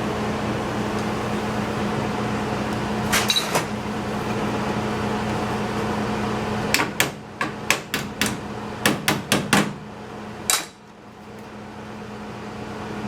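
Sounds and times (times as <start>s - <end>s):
steady machine hum: 0.0s - 13.0s
hammer tapping on sheet metal: 6.7s - 9.8s.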